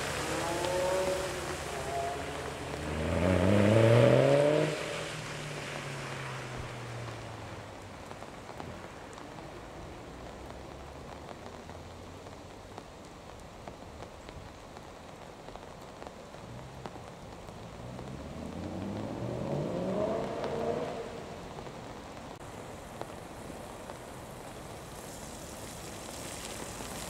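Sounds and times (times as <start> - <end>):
car engine accelerating: 0.0 - 7.7, 17.7 - 21.6
car engine driving away: 0.0 - 8.2, 16.4 - 21.9
rain on wet tarmac: 0.0 - 27.0.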